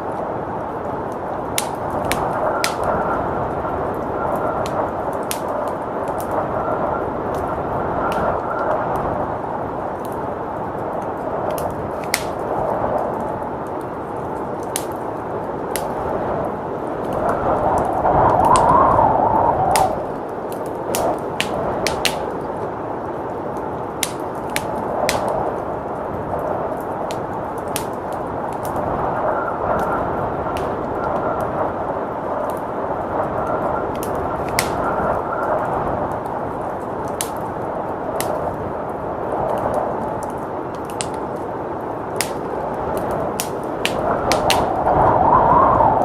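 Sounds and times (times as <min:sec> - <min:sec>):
blizzard wind rushing: 0:00.0 - 0:46.0
wood fire crackling: 0:00.0 - 0:46.0.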